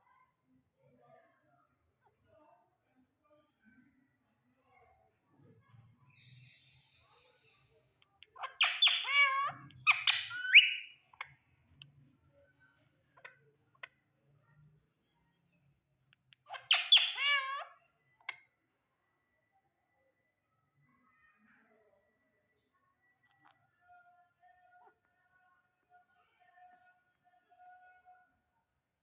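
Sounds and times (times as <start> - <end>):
parakeet chatter: 8.3 - 10.9, 16.5 - 17.7
parakeet squawking: 8.4 - 10.9, 16.5 - 17.7.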